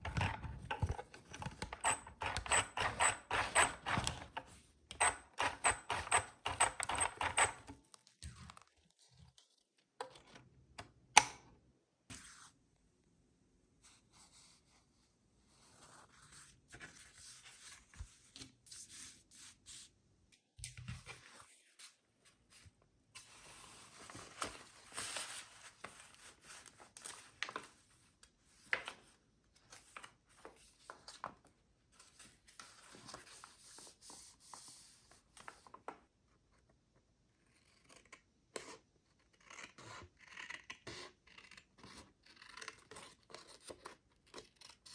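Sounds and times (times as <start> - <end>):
paper rustling: 20.8 - 28.0.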